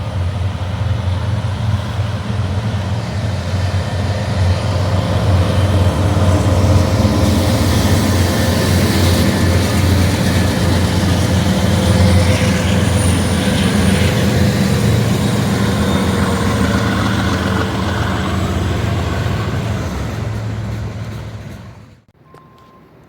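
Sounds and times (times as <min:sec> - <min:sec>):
freight train wheels rumbling: 0:00.0 - 0:22.1
faint high wheel squeal: 0:07.2 - 0:23.0.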